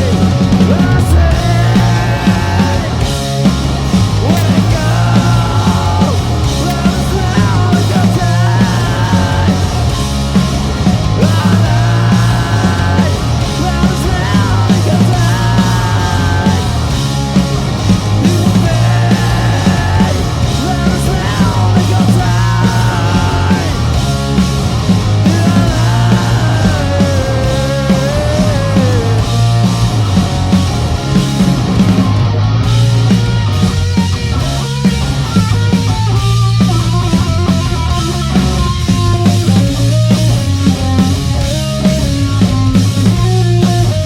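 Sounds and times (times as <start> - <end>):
lead guitar line bending: 0.0 - 44.0
live rock band playing: 0.0 - 44.0.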